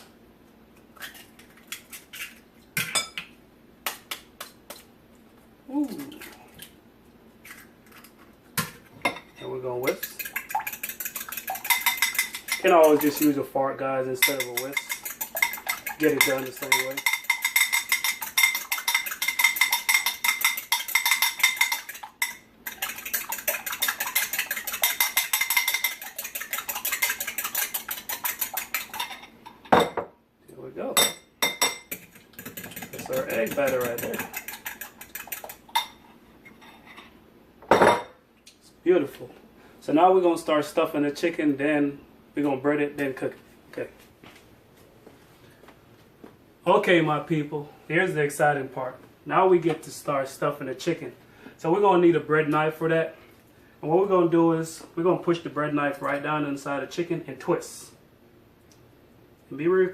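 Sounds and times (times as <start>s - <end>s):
eggs cracking on a bowl: 9.8s - 13.4s, 14.3s - 29.3s, 31.4s - 36.0s.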